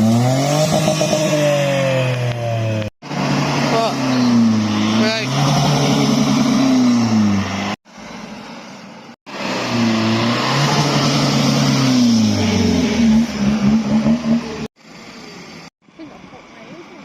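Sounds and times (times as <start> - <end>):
car engine revving: 0.0 - 7.8, 9.3 - 14.7.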